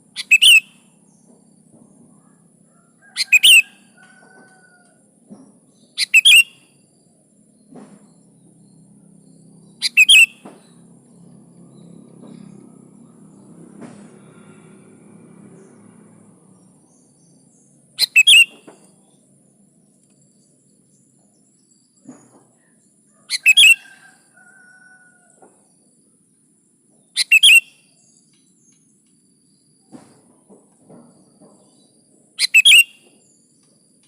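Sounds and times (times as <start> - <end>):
bulbul calling: 0.1 - 0.8, 6.0 - 6.6, 9.7 - 10.6, 18.0 - 18.8, 23.3 - 23.9, 27.2 - 27.8, 32.4 - 33.1.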